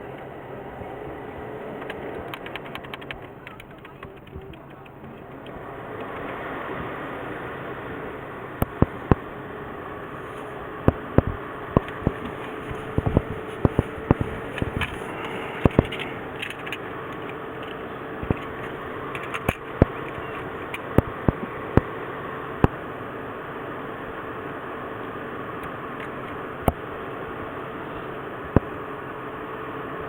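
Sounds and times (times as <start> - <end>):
car engine idling: 0.0 - 30.0
sharp clicks and knocks: 1.8 - 6.4, 10.4 - 21.9.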